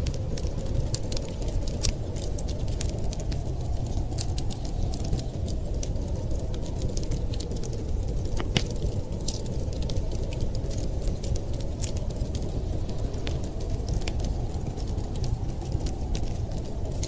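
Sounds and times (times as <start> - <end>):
blizzard wind rumbling: 0.0 - 17.0
wood fire crackling and popping: 0.0 - 17.0.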